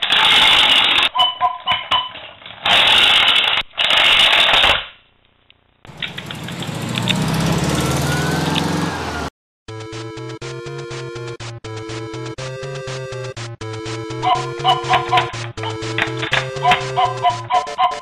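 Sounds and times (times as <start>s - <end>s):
harsh racing engine bursts: 5.9s - 9.3s
engine running down: 5.9s - 17.3s.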